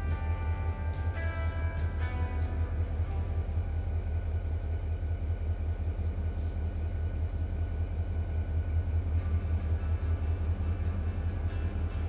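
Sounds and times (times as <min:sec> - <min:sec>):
train rumbling with fast throb: 0:00.0 - 0:12.0.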